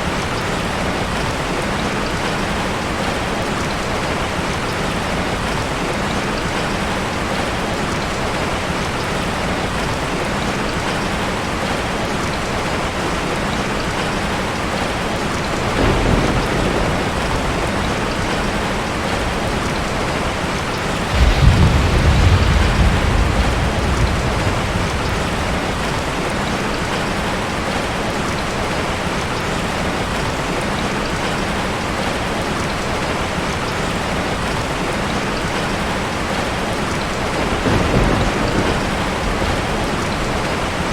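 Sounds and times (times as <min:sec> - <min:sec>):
steady rain falling: 0:00.0 - 0:40.9
low thunder rumbles: 0:14.8 - 0:28.2, 0:36.2 - 0:40.9.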